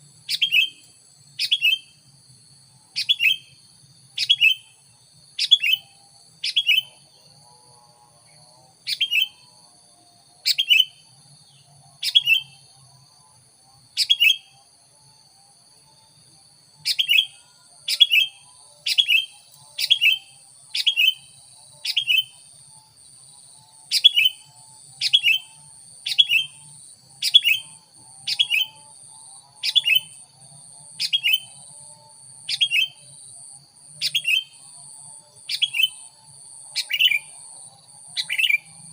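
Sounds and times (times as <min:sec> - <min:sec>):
bird calling: 0:00.3 - 0:01.9, 0:27.2 - 0:28.9.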